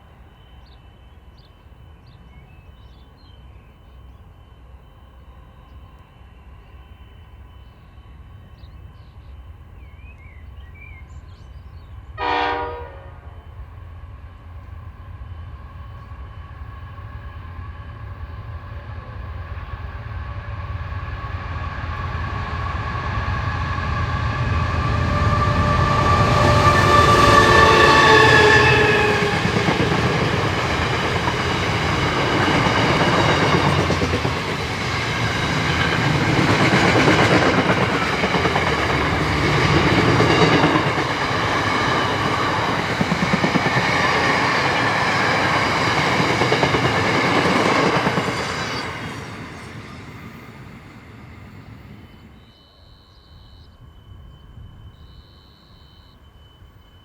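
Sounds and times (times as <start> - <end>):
diesel locomotive engine drone: 0.0 - 57.0
train wheels clickety-clack: 17.0 - 52.0.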